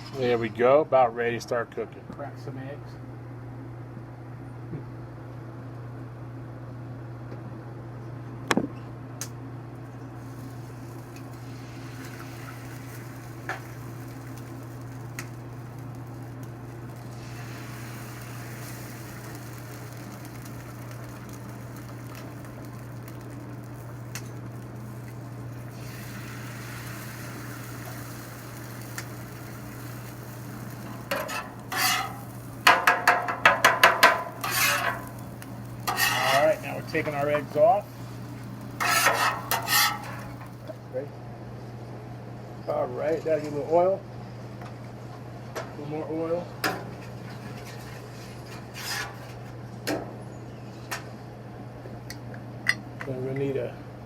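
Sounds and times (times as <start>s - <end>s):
eggs sizzling on a griddle: 10.0s - 40.8s, 46.8s - 49.5s
metal spatula scraping griddle: 30.7s - 40.6s, 47.6s - 49.4s.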